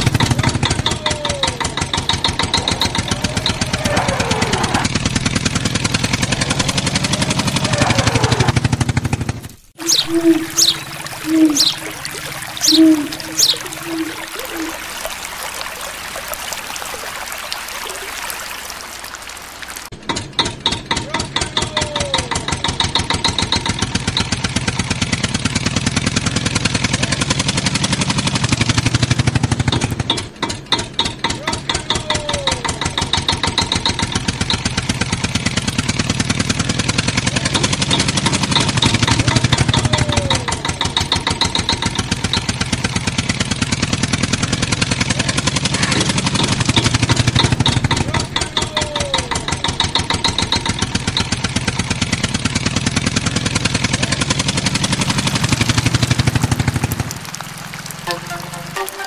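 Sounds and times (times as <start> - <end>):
tractor engine chugging: 0.0 - 16.2, 19.9 - 59.0
rushing watery hiss: 1.6 - 5.0, 9.8 - 19.9, 53.4 - 59.0.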